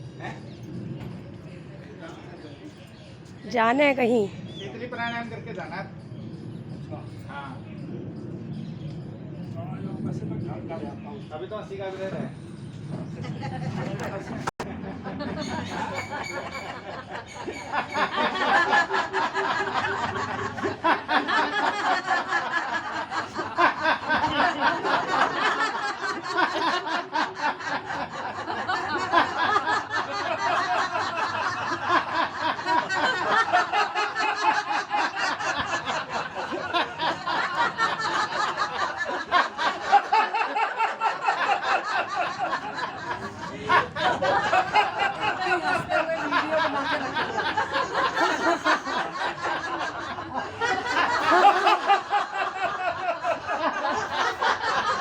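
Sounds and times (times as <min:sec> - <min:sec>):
group of people laughing: 0:13.0 - 0:55.0.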